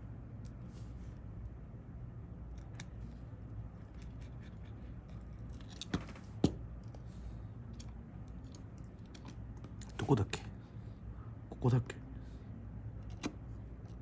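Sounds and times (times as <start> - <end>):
steady low hum: 0.0 - 14.0
hand tools clicking on phone parts: 13.0 - 14.0.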